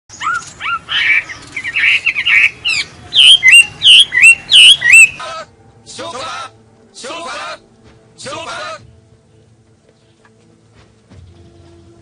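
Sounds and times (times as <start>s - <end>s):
bird swooping calls: 0.1s - 5.5s
birds chirping: 0.1s - 12.0s.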